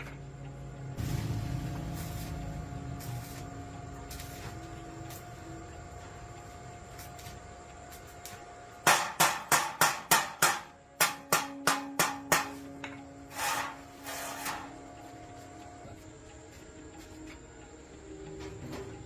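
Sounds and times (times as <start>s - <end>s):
hammer striking metal: 8.8s - 14.8s
short scraping sounds: 13.3s - 14.7s.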